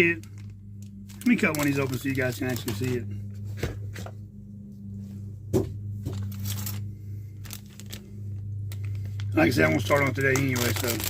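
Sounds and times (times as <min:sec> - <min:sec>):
plastic bag crackling and tearing: 0:00.0 - 0:03.0, 0:07.4 - 0:08.1, 0:08.8 - 0:11.0
steady low hum: 0:00.0 - 0:11.0.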